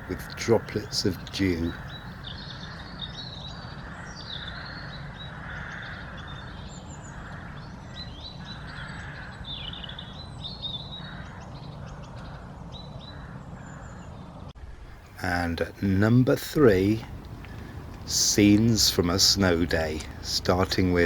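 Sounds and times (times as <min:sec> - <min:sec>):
songbirds chirping: 0:00.0 - 0:21.0
crows cawing: 0:03.7 - 0:10.2, 0:11.0 - 0:12.5, 0:13.1 - 0:14.1, 0:16.6 - 0:21.0.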